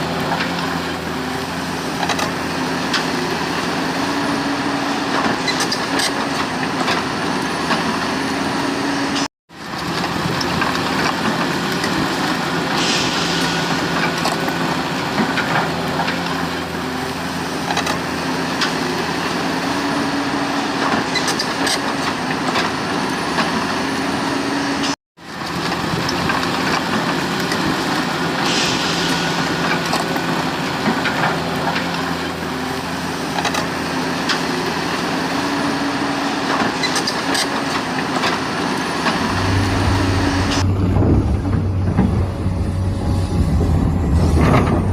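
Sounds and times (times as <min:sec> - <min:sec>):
model excavator machine hum: 0:00.0 - 0:44.9.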